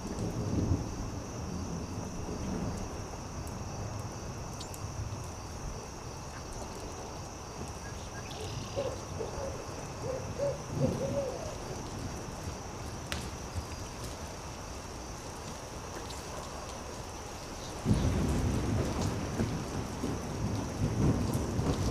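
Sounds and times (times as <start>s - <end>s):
campfire crackles: 0.0s - 21.9s
owl hooting: 7.9s - 11.7s.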